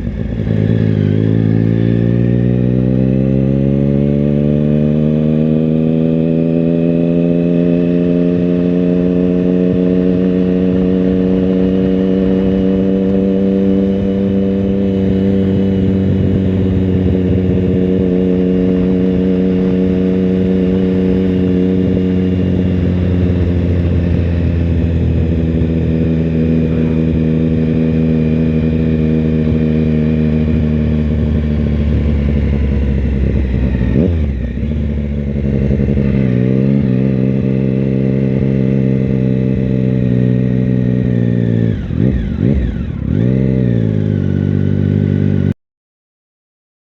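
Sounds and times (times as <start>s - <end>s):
motorcycle engine running: 0.0s - 45.6s.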